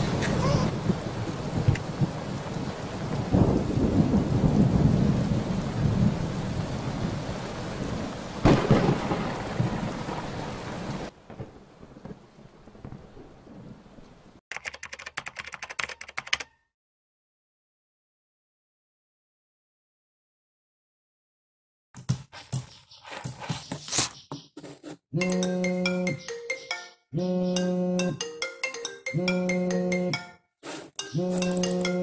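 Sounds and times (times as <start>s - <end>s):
thunder rumbling: 0.0s - 14.0s
rain: 0.0s - 14.4s
sharp thunderclap: 8.4s - 10.7s
rapid key-like clicking: 14.5s - 16.5s.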